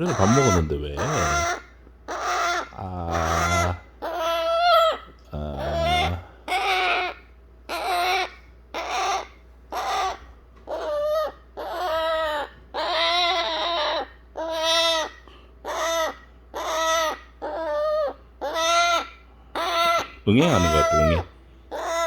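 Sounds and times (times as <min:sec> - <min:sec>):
baby parrot begging calls: 0:00.0 - 0:22.0.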